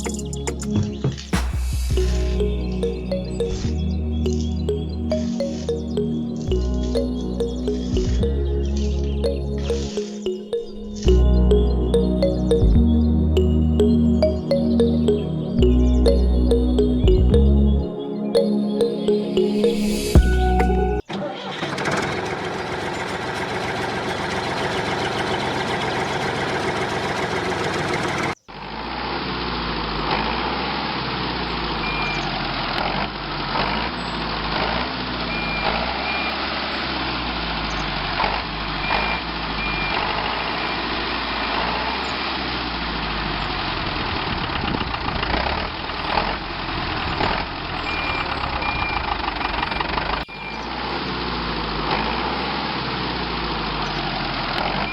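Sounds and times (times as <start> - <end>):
small tractor engine running: 21.5 - 54.9.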